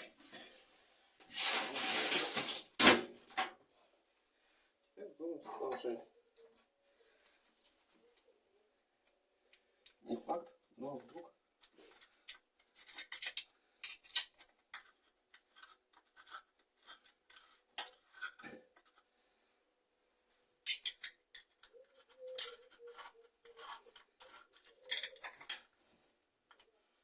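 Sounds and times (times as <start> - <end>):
small metal parts clinking: 11.6 - 19.0, 20.6 - 25.8.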